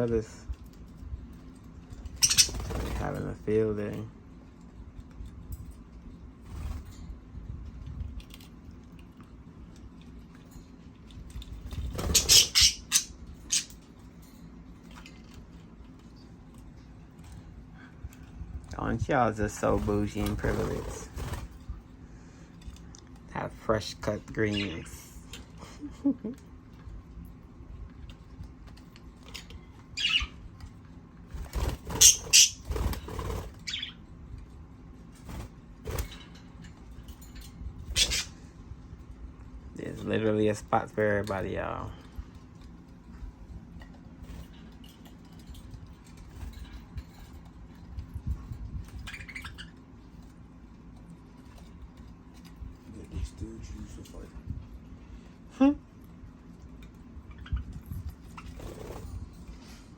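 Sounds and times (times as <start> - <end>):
birds chirping: 0.0 - 4.7, 11.3 - 27.0, 29.0 - 34.5, 35.2 - 38.6, 44.2 - 55.4, 56.4 - 59.4
birds flapping and scuffling: 0.0 - 59.9
birds squawking: 1.9 - 3.2, 11.7 - 13.8, 19.6 - 21.6, 29.3 - 30.5, 31.4 - 34.0, 37.8 - 38.5, 48.9 - 49.9.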